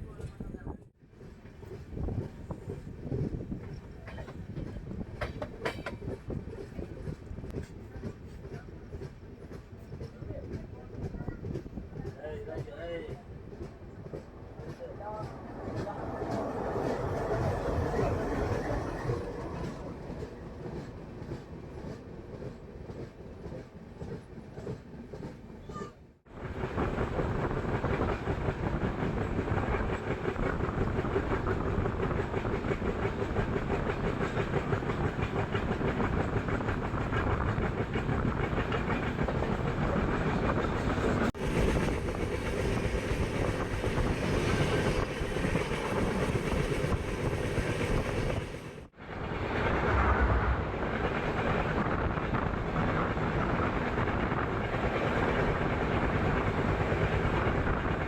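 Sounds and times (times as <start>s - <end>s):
train wheels clattering over rails: 1.1s - 25.5s.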